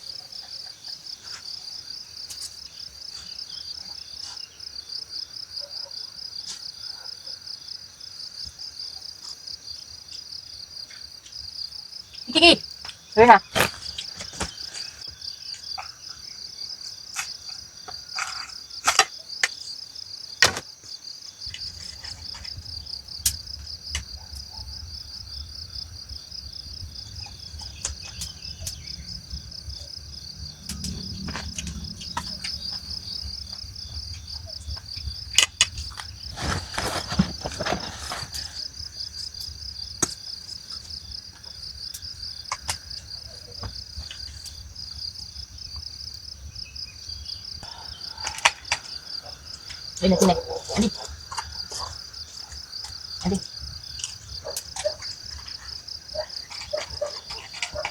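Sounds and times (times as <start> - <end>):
crickets trilling: 0.0 - 57.9
low steady rumble: 26.5 - 35.3.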